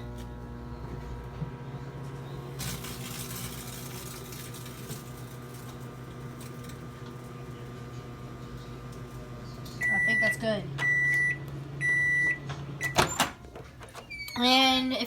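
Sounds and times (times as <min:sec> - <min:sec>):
microwave oven humming: 0:00.0 - 0:15.0
bag crackling: 0:02.6 - 0:05.8.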